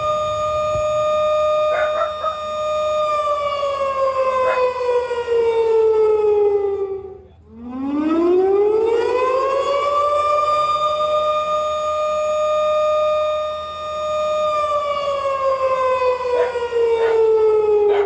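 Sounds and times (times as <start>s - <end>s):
warning siren wailing: 0.0s - 18.0s.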